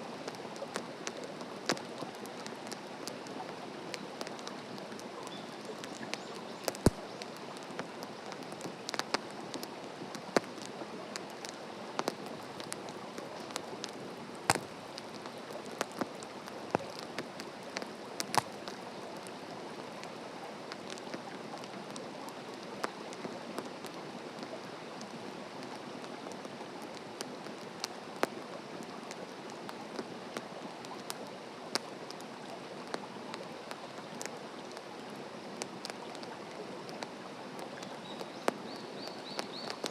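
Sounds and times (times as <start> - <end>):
wood fire crackling and popping: 0.2 - 25.1, 36.9 - 39.9.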